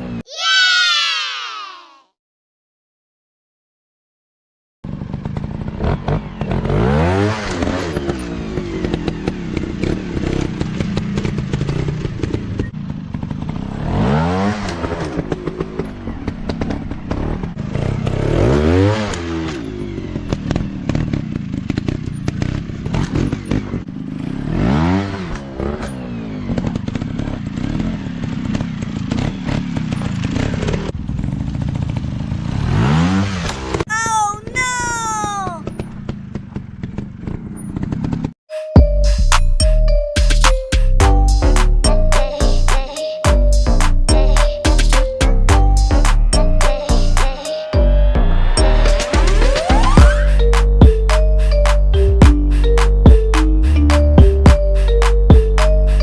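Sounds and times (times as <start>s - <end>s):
dirt bike engines revving: 4.9s - 38.1s, 47.1s - 56.0s.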